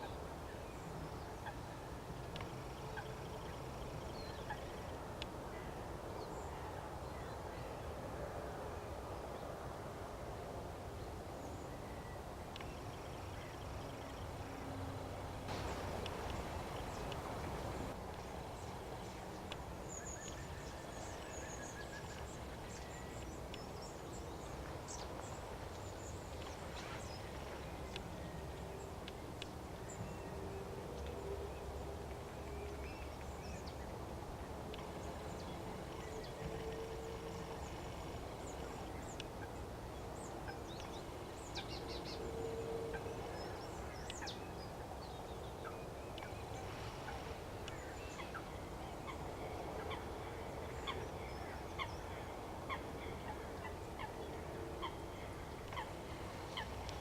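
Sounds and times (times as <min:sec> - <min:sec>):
background hiss: 0:00.0 - 0:57.0
birds chirping: 0:12.5 - 0:30.4.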